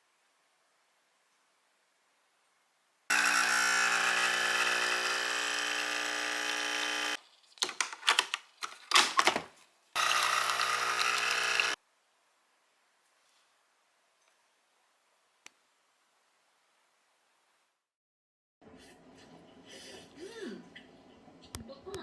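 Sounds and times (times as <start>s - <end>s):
small appliance motor running: 3.1s - 7.2s, 10.0s - 11.8s.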